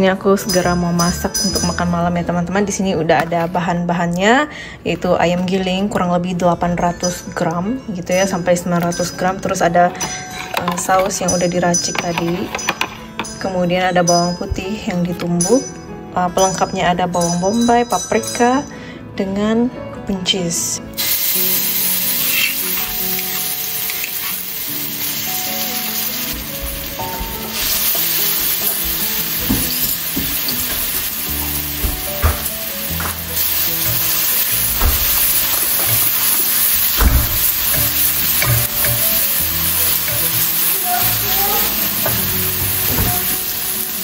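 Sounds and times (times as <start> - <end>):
food sizzling in hot oil: 20.9 - 44.0.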